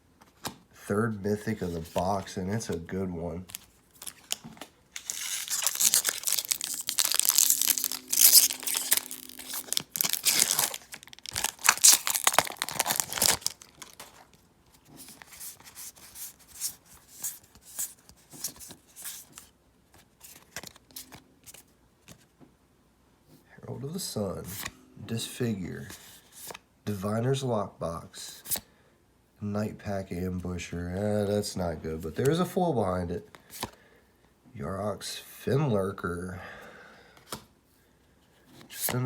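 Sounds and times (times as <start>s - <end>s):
cards rustling and clicking: 1.4s - 22.3s, 33.3s - 33.8s
foil wrapper tearing and crinkling: 3.5s - 14.4s.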